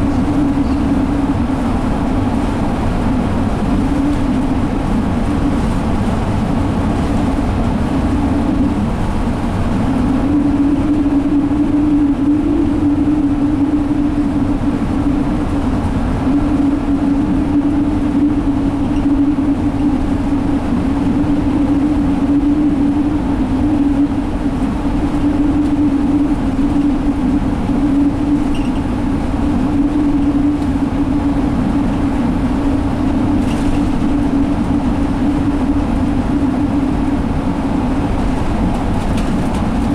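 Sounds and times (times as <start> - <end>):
bus engine hum: 0.0 - 39.9
tyre and road rumble: 31.3 - 39.9.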